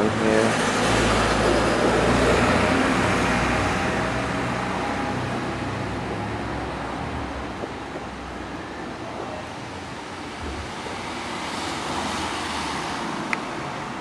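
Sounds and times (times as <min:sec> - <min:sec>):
road noise: 0:00.0 - 0:14.0
vehicle driving past: 0:00.3 - 0:08.8.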